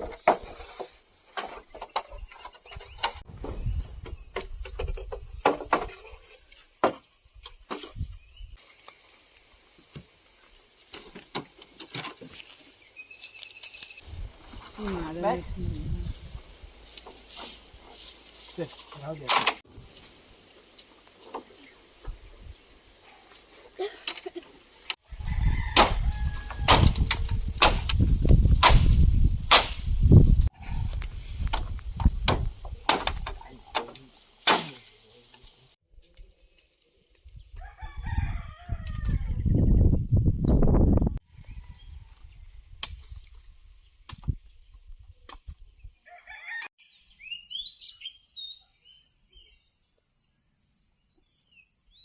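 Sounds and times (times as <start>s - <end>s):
rooster crowing: 25.1s - 26.8s, 37.6s - 39.4s, 46.0s - 46.7s
small birds chirping: 46.8s - 52.0s.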